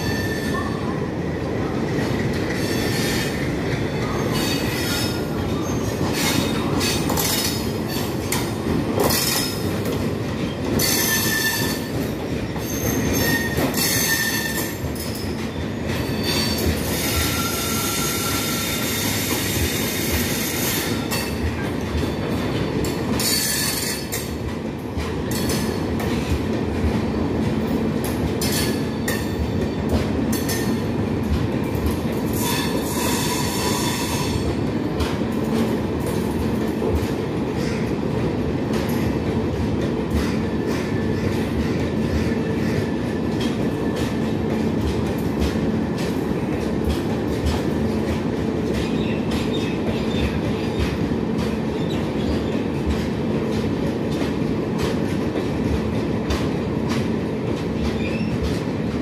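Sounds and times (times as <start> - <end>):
train wheels rumbling on rail: 0.0 - 59.0
wheels clacking over rail joints: 1.8 - 59.0
high wheel squeals: 15.5 - 20.7.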